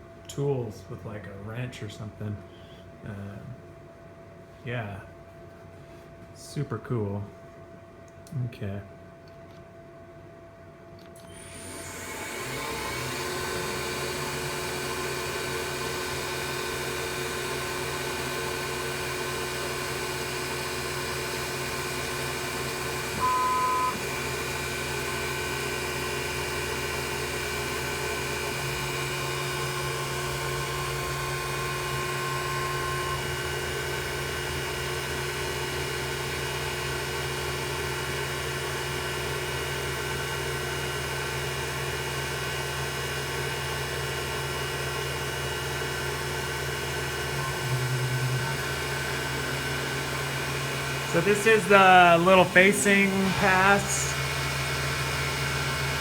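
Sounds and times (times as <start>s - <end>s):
milling machine humming: 11.5s - 56.0s.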